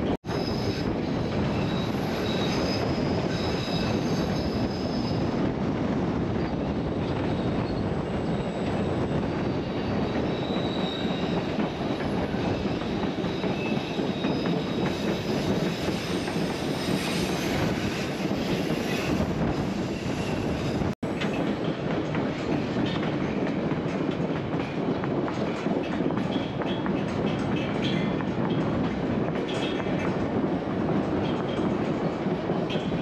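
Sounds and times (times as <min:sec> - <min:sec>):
train wheels rumbling and rattling: 0:00.0 - 0:33.0.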